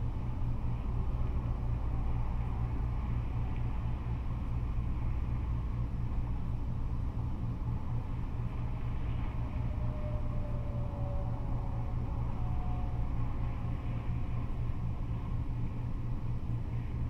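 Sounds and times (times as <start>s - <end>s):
freeway traffic rumble: 0.0s - 17.0s
faint tone sliding down: 8.4s - 15.4s.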